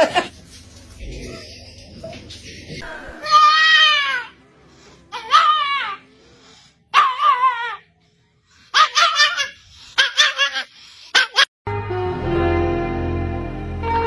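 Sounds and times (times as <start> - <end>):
music: 11.7 - 14.0.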